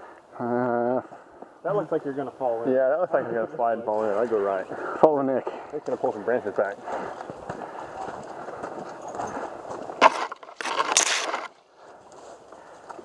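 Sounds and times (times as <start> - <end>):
branches rustling and cracking: 9.9 - 13.0.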